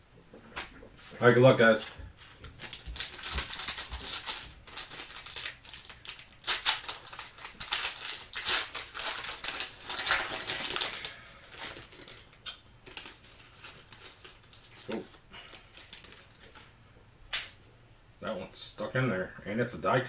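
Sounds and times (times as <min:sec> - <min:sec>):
wrapper tearing and crinkling: 0:02.2 - 0:16.7.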